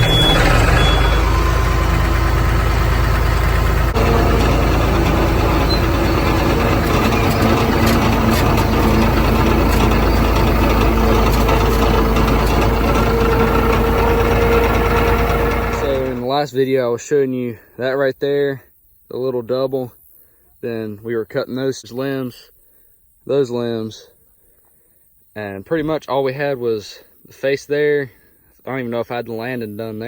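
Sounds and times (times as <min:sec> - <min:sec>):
heavy engine running steadily: 0:00.0 - 0:16.3
steady whine: 0:00.0 - 0:16.3.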